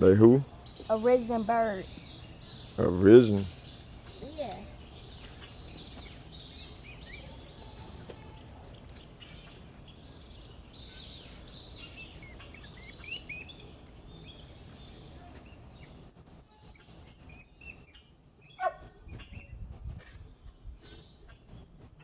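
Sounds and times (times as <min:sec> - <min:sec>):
birds chirping and calling: 0:00.0 - 0:22.0.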